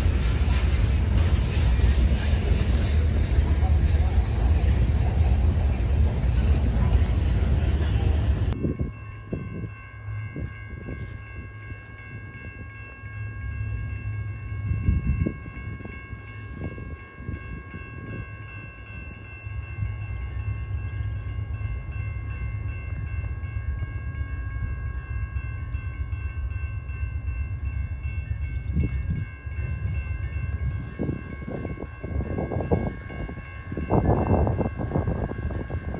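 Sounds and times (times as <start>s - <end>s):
train low rumble: 0.0s - 35.9s.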